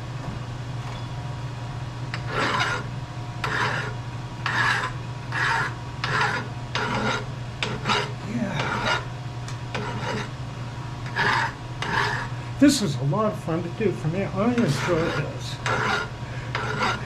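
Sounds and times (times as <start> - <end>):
lathe humming: 2.1 - 17.0
file rasping on steel: 2.2 - 9.1, 9.7 - 10.3, 11.0 - 12.3, 14.4 - 17.0.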